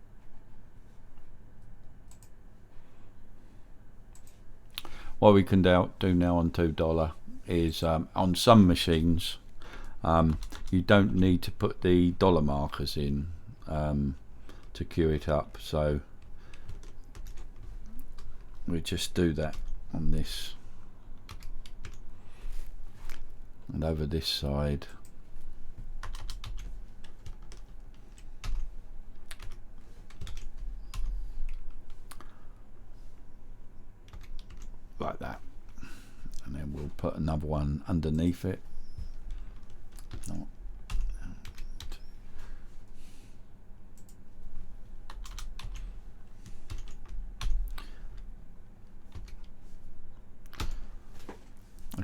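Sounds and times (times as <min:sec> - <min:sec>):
low steady hum: 0:00.0 - 0:52.0
keyboard typing: 0:10.3 - 0:10.7, 0:16.5 - 0:18.6, 0:21.3 - 0:22.1, 0:26.0 - 0:32.3, 0:34.1 - 0:34.7, 0:38.8 - 0:42.2, 0:45.1 - 0:48.3, 0:49.1 - 0:49.6.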